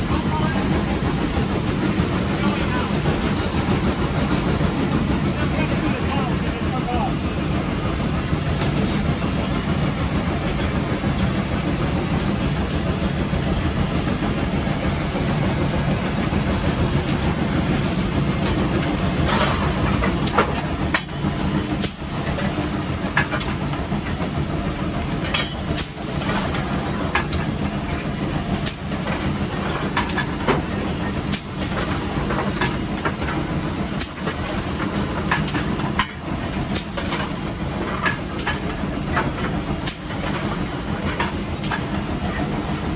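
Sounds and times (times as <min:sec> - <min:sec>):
hissing steam: 0:00.0 - 0:42.9
steam locomotive rumble: 0:00.0 - 0:42.9
sharp clicks and knocks: 0:18.4 - 0:42.5.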